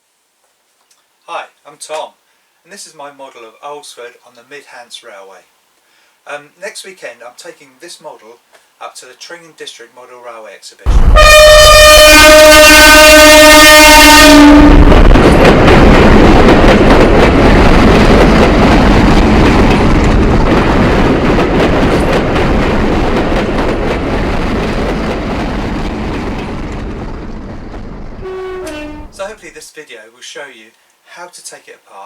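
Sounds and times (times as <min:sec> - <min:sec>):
train horn blast: 0:10.9 - 0:16.0, 0:28.2 - 0:29.3
train wheels rumbling and rattling: 0:13.4 - 0:29.4.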